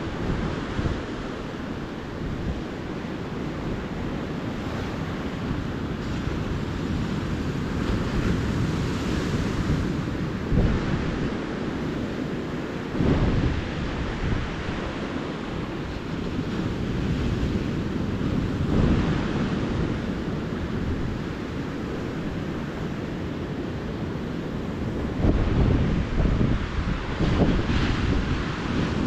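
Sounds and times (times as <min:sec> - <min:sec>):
ocean surf washing ashore: 0:00.0 - 0:29.0
wind buffeting microphone: 0:00.0 - 0:29.0.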